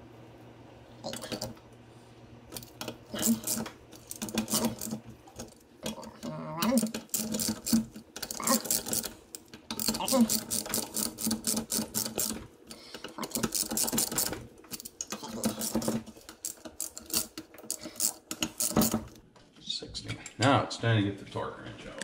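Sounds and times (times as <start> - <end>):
socket ratchet clicking: 6.8 - 12.4, 13.1 - 19.2.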